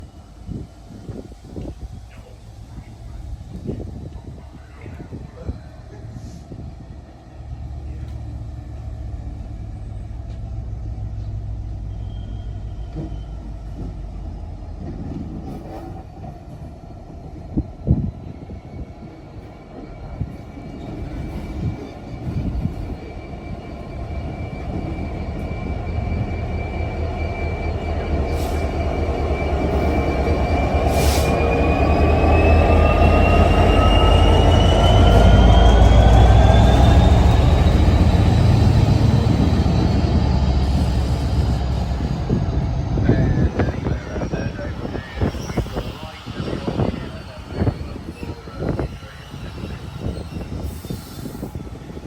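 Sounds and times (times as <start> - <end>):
train rumble: 0.0 - 52.0.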